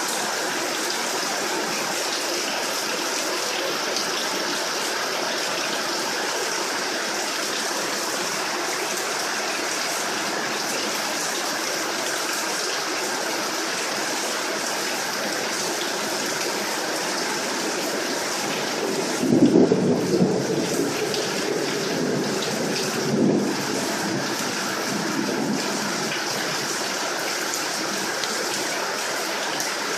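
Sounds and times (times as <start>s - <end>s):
heavy rain falling: 0.0s - 29.9s.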